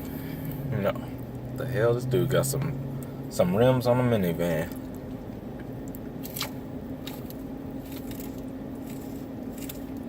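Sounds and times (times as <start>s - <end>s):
steady low hum: 0.0s - 10.0s
man chewing food: 4.8s - 10.0s.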